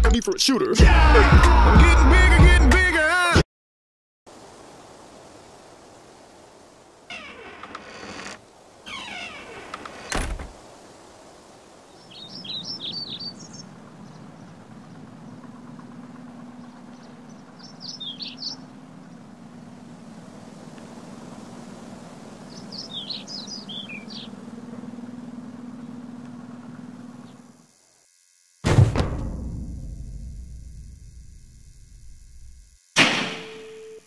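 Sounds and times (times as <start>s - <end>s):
low outdoor hum: 4.3s - 34.0s
songbird chirping: 11.6s - 27.6s.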